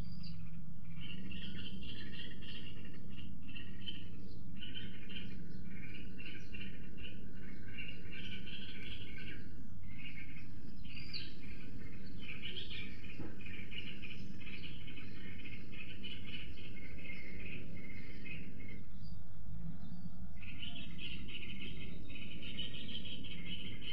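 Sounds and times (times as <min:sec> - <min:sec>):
low background rumble: 0:00.0 - 0:23.9
songbirds chirping and singing: 0:00.0 - 0:23.9.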